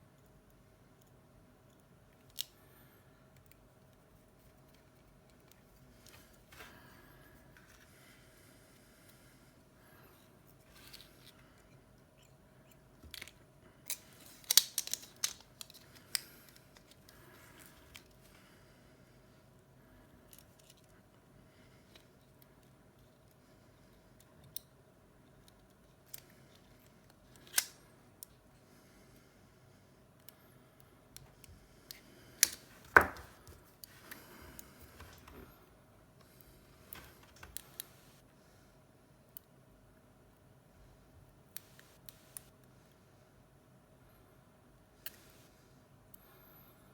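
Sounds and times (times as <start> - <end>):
light clicks and taps of tools: 3.3 - 6.7, 24.2 - 28.4.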